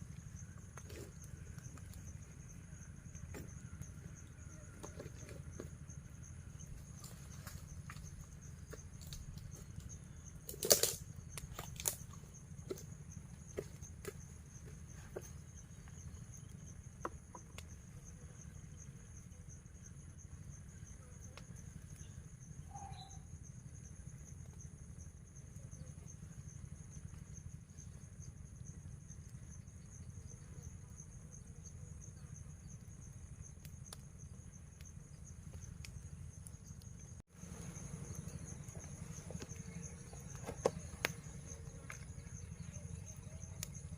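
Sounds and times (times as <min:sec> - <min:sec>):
insects droning: 0:00.0 - 0:43.9
sharp snaps and clicks: 0:10.5 - 0:12.1.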